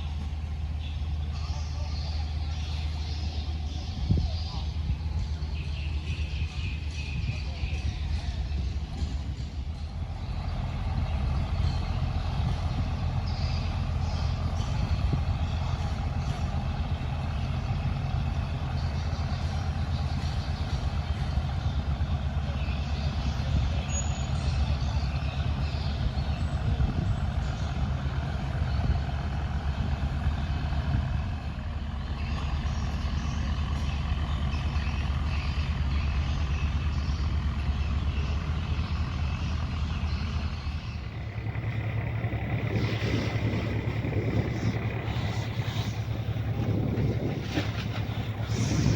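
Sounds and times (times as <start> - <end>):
boat engine droning: 0.0 - 48.9.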